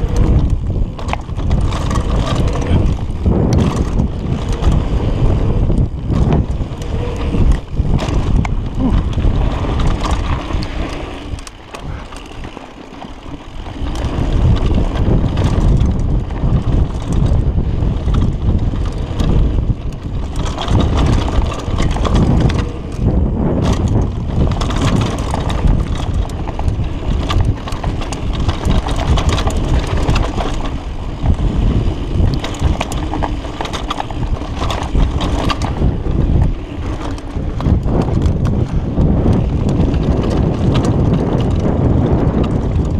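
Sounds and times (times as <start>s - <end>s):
bike frame clattering: 0.0s - 16.1s
bike tyres running over dirt: 0.0s - 42.9s
wind rushing over microphone: 0.0s - 42.9s.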